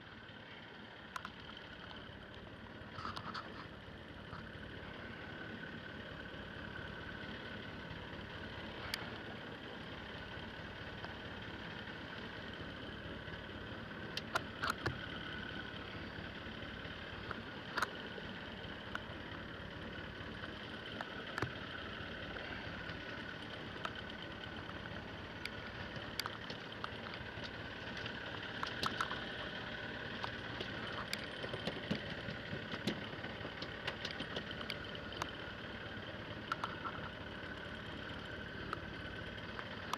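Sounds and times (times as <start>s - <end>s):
boat engine running: 0.0s - 39.9s
sharp clicks and knocks: 25.4s - 29.3s, 30.2s - 35.4s.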